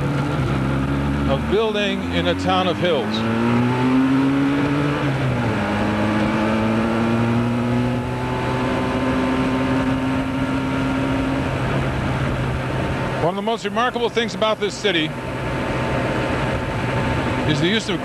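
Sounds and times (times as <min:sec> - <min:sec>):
two-stroke motorcycle engine: 0:00.0 - 0:18.0.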